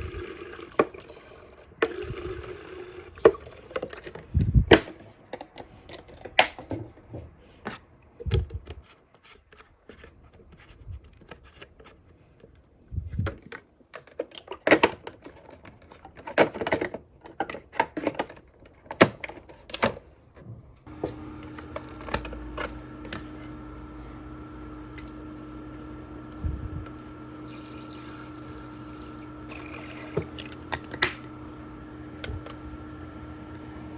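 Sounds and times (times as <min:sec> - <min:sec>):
humidifier fan humming: 0:00.0 - 0:08.9, 0:19.7 - 0:33.9.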